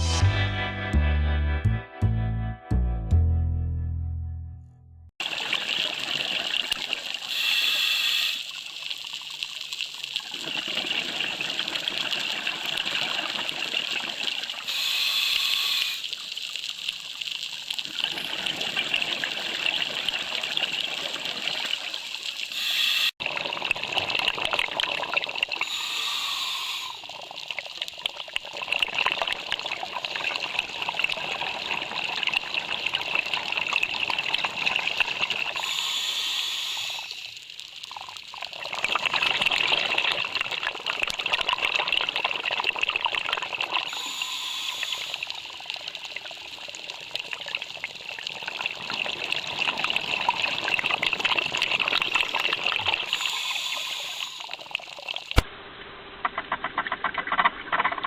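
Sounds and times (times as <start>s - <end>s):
underwater hiss with crackling: 6.6s - 13.5s, 14.5s - 19.4s, 20.3s - 23.2s, 25.5s - 28.4s, 35.4s - 38.4s, 43.8s - 48.0s, 52.2s - 55.4s.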